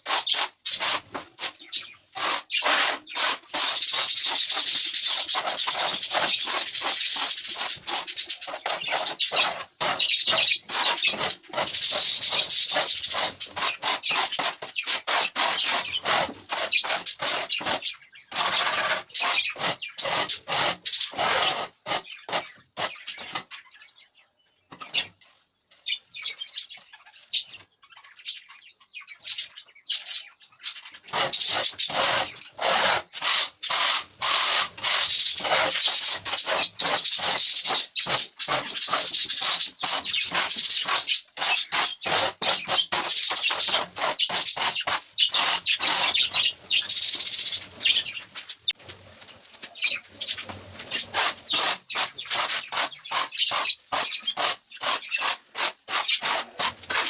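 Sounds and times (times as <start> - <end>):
loofah gourd scratching: 0.0 - 23.4, 31.0 - 57.0.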